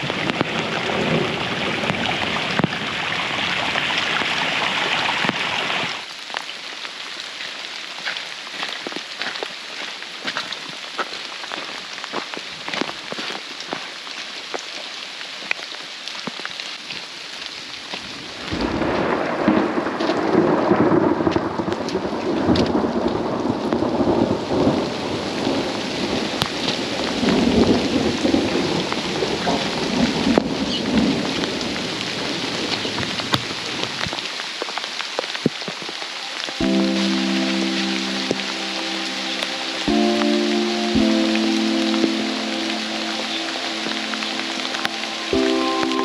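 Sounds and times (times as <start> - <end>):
heavy rain pattering: 0.0 - 46.0
thunder rumbling: 18.4 - 33.1.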